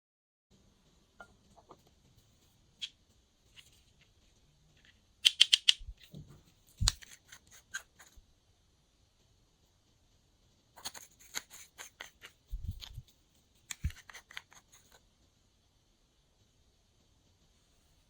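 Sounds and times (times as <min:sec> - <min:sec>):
sticky slime clicks: 0:05.2 - 0:05.8.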